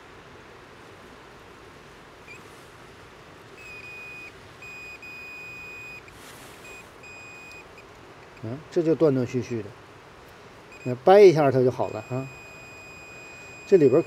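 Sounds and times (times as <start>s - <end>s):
multimeter beeping: 3.6s - 8.5s, 10.7s - 11.1s, 11.7s - 14.0s.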